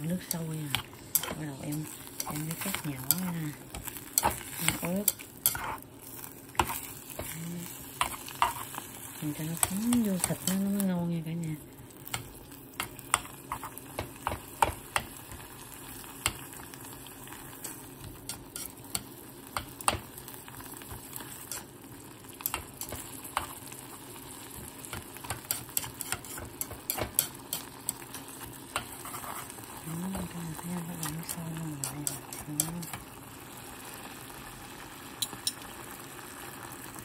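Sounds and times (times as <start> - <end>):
meat sizzling in a pan: 0.0 - 37.0
utensil tapping and scraping a pan: 0.3 - 5.8, 12.1 - 15.4, 17.5 - 20.1, 22.4 - 23.6, 24.6 - 30.4, 31.0 - 33.0.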